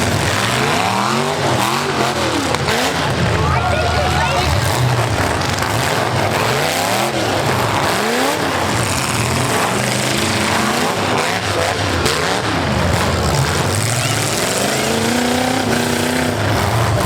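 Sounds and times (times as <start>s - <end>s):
car engines revving hard: 0.0s - 17.0s
steady loud din: 1.1s - 6.4s.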